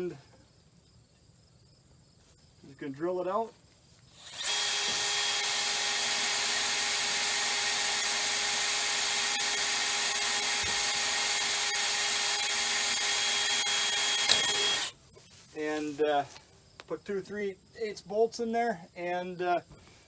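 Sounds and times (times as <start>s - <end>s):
power drill boring steel: 4.2s - 15.0s.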